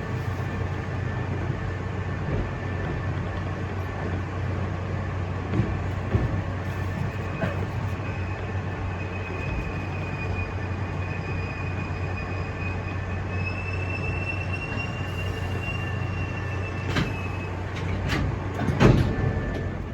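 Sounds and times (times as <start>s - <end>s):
electric train running over rails: 0.0s - 19.9s
high squeal: 7.1s - 17.9s.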